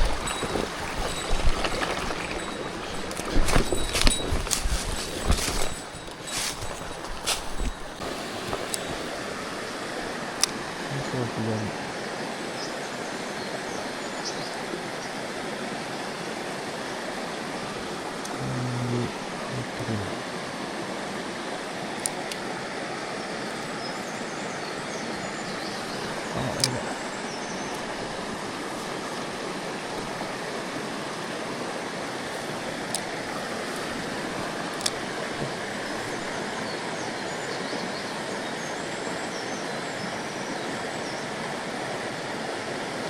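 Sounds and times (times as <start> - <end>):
stream water rushing: 0.0 - 43.0.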